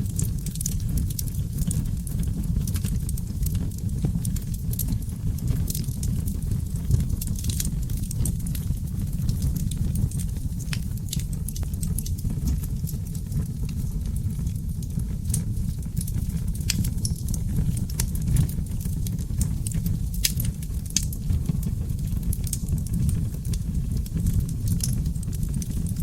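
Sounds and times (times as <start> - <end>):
fire flames rumbling: 0.0 - 26.0
logs crackling and popping: 0.0 - 26.0.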